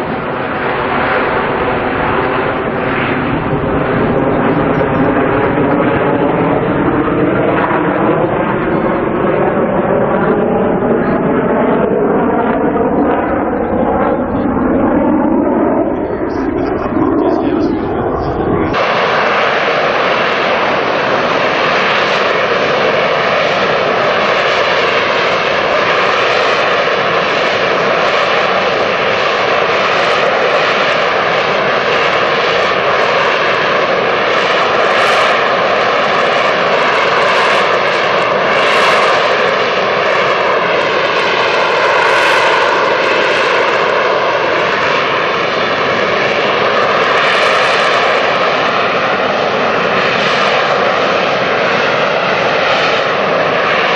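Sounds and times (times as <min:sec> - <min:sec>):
jet engine roaring with whine: 0:00.0 - 0:53.9.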